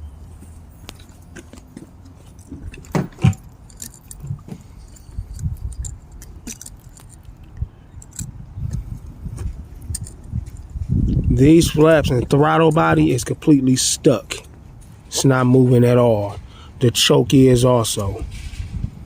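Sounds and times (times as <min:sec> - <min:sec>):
light metal clicks and rubbing: 0:00.8 - 0:11.3.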